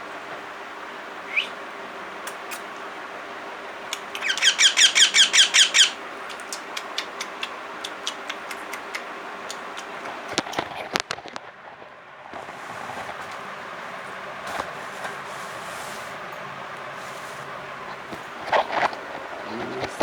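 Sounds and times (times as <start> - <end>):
parrot shrill calls: 4.0 - 6.0
sharp clicks: 6.3 - 11.2.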